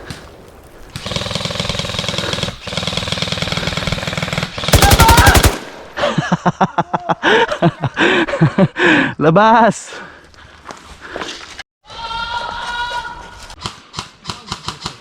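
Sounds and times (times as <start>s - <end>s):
airsoft rifle firing bursts: 1.0s - 5.9s.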